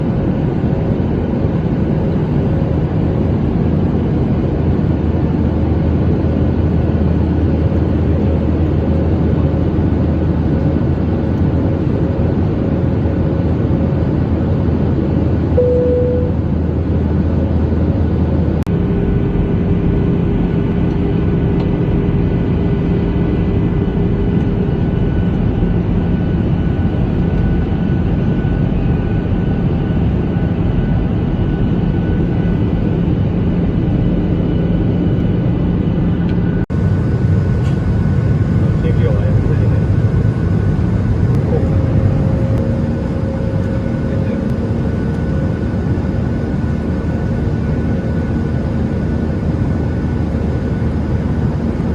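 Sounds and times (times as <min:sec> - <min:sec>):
airliner cabin engine drone: 0:00.0 - 0:51.9
faint humming tones: 0:15.5 - 0:16.7.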